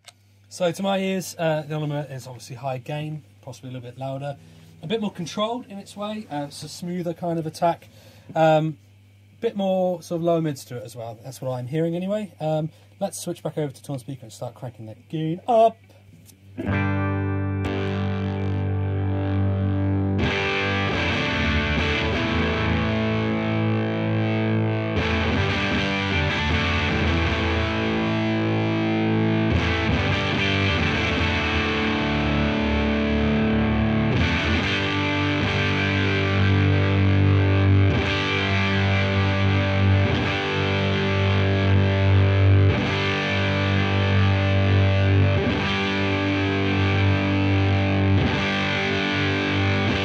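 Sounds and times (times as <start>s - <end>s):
fuzzed electric guitar chords: 4.0s - 9.4s, 15.8s - 50.0s.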